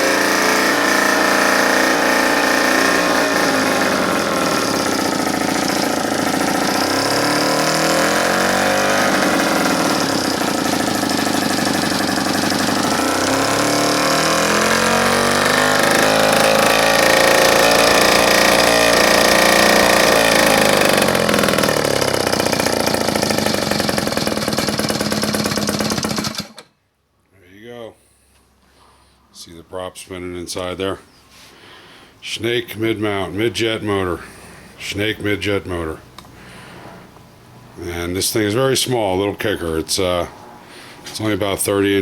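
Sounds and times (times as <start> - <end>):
outboard engine revving: 0.0 - 26.6.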